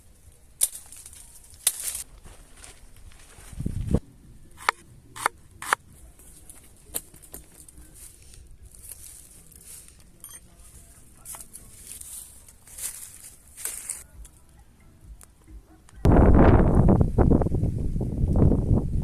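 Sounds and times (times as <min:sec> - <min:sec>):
soft rustling: 0:00.8 - 0:04.0, 0:05.9 - 0:14.2.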